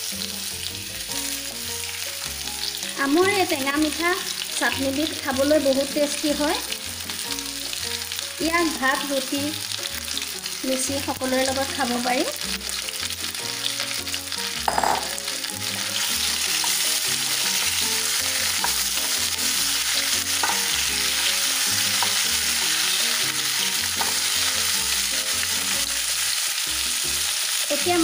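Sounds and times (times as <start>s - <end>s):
mango slices sizzling in oil: 0.0s - 28.0s
spatula knocking a pan: 14.6s - 15.2s, 18.5s - 19.2s, 20.3s - 21.1s, 21.9s - 22.8s, 23.9s - 24.3s.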